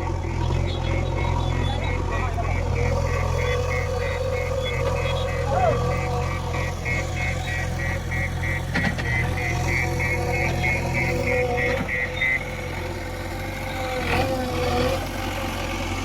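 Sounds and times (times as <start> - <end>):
rapid electronic beeping: 0.0 - 13.0
diesel engine idling: 0.0 - 16.0.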